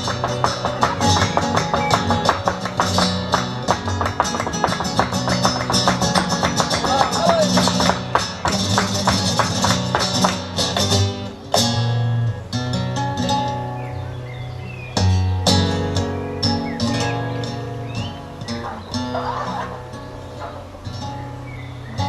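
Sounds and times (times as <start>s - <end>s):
acoustic guitar strummed flamenco: 0.0s - 22.0s.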